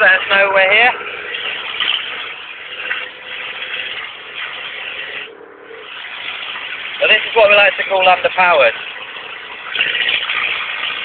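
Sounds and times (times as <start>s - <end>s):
car engine without exhaust: 0.0s - 11.0s
road noise: 0.0s - 11.0s.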